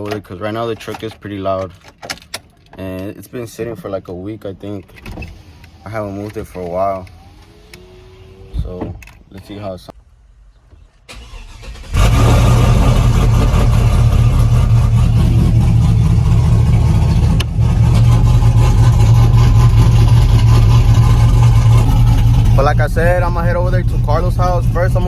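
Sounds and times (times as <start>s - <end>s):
starter cranking: 11.1s - 25.0s
truck engine running loud: 11.9s - 25.0s.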